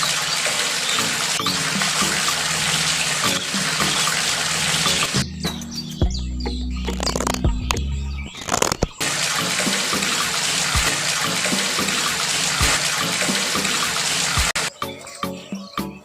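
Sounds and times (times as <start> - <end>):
water rushing and splashing: 0.0 - 5.3, 8.4 - 14.7.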